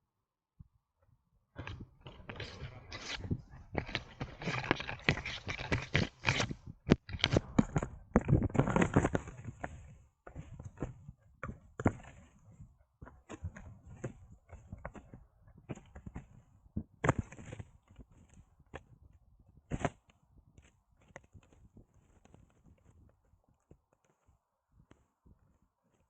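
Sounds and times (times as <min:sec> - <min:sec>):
fur and harness rubbing camera: 0:01.6 - 0:16.4.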